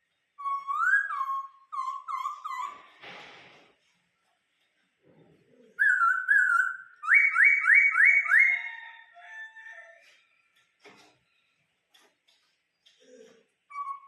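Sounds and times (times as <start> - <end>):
bird singing loud whistles: 0.4 - 2.9, 5.8 - 8.8.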